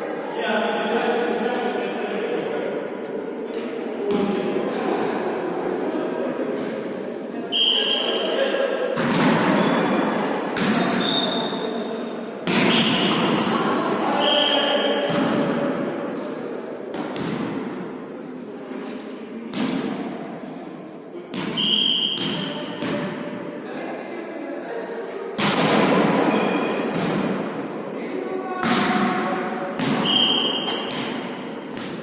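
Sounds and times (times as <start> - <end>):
tennis ball thuds in echoing hall: 3.0 - 6.9, 8.5 - 11.8, 12.4 - 18.1, 19.4 - 20.5, 21.2 - 23.5, 25.2 - 32.0.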